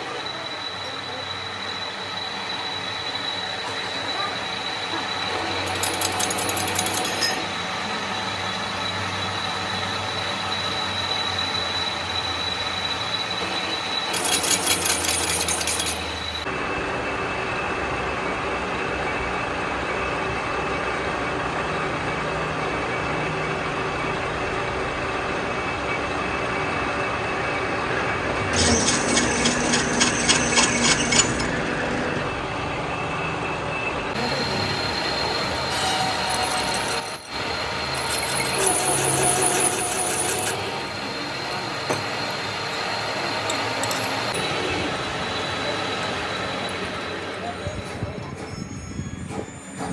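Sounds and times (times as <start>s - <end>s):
metalworking machinery running: 0.0s - 49.9s
rapid metallic clicking: 14.1s - 16.4s.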